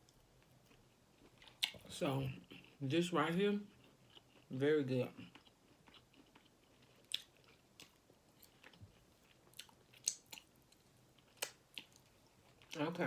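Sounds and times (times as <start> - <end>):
person chewing with wet mouth clicks: 5.3 - 12.8.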